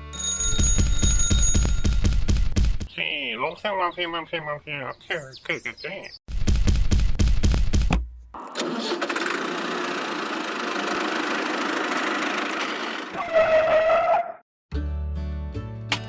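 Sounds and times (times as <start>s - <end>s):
engine cranking and running: 8.4s - 13.2s.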